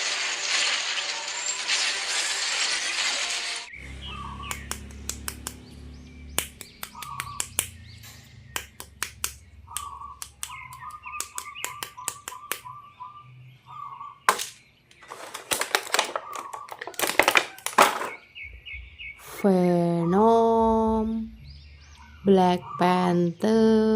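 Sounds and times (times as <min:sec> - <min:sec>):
plastic packaging crinkling: 0:00.0 - 0:03.7, 0:15.0 - 0:18.2
faint chirping trill: 0:09.4 - 0:15.0.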